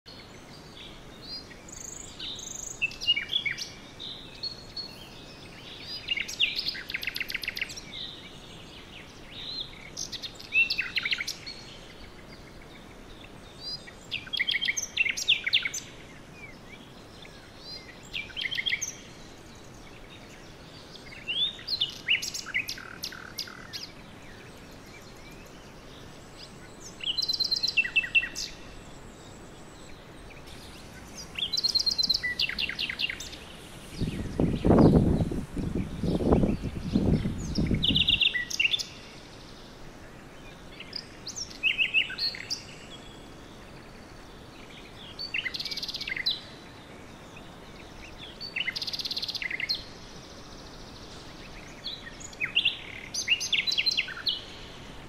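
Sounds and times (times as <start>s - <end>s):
faint steady hiss: 0.1s - 55.0s
songbirds trilling: 0.1s - 55.0s.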